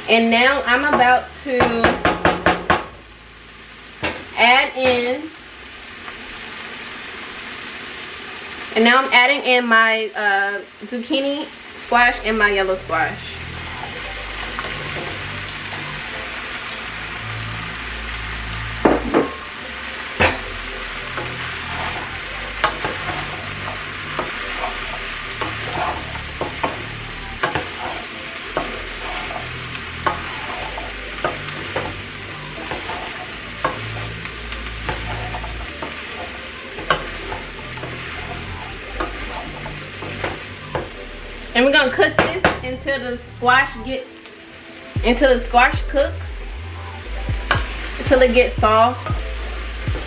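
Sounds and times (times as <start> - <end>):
vegetables sizzling in a pan: 0.0 - 50.0
utensil scraping a pan: 21.1 - 34.1.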